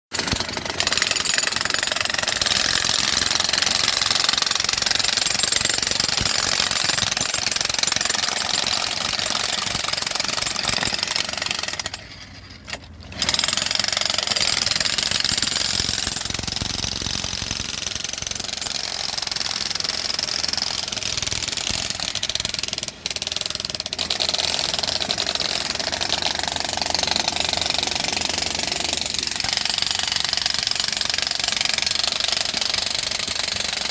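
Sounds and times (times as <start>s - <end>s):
loud construction power tool: 13.1s - 33.8s.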